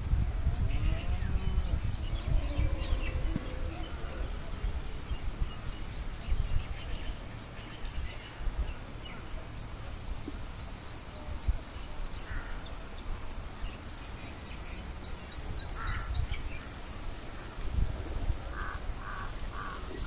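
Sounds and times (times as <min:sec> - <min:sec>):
low rumble on microphone: 0:00.0 - 0:20.0
harsh caw-like bird calls: 0:15.7 - 0:16.3, 0:18.5 - 0:20.0.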